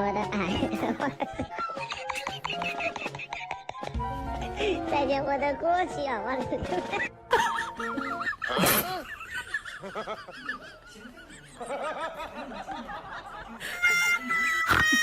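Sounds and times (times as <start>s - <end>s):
person giggling breathlessly: 8.4s - 9.2s.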